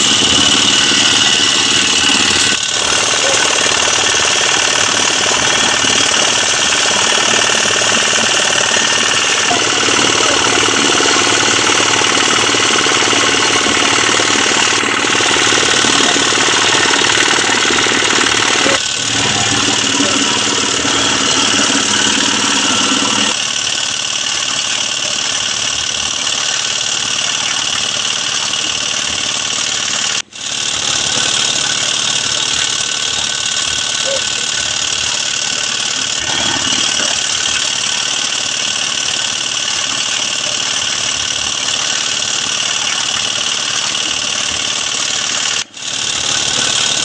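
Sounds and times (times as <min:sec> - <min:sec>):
road repair machinery clattering: 0:00.0 - 0:47.0.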